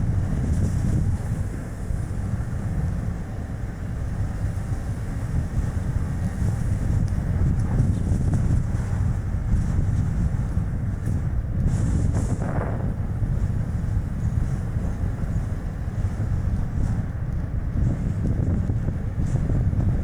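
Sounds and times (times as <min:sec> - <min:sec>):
car tyre and road noise: 0:00.0 - 0:20.0
wind buffeting microphone: 0:00.0 - 0:20.0.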